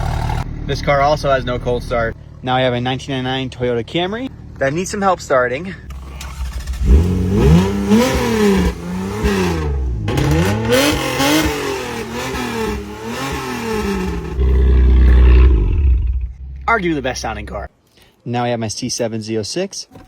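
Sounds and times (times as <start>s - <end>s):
car engine starting roughly: 0.0s - 1.0s, 5.8s - 17.7s.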